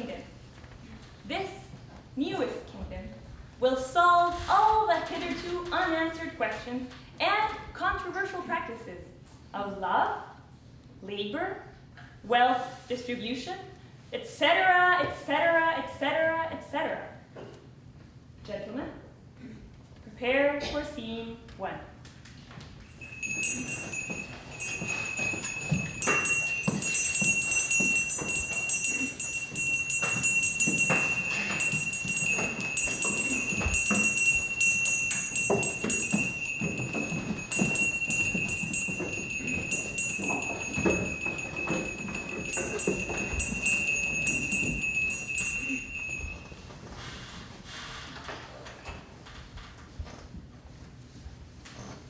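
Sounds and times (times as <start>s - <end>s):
bell-like jingling: 22.8s - 46.7s
high ringing tone: 22.8s - 46.8s
knocks and thumps: 23.0s - 46.3s.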